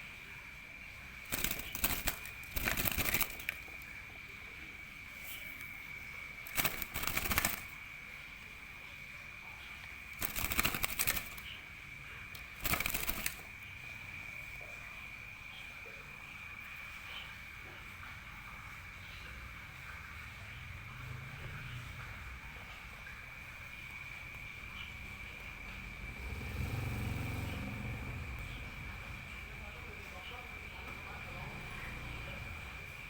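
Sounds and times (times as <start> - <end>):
bird wings fluttering in a cage: 1.2 - 4.0, 5.2 - 7.9, 9.9 - 13.7.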